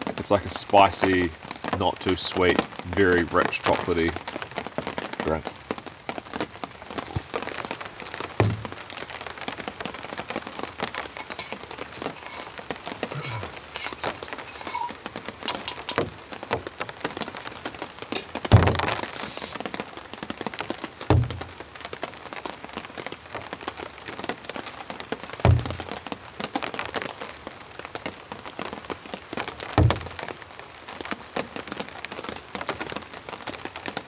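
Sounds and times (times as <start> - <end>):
rain pattering: 0.0 - 34.0
heavy thuds: 8.4 - 9.0, 18.5 - 19.0, 21.1 - 21.6, 25.5 - 26.0, 29.8 - 30.2.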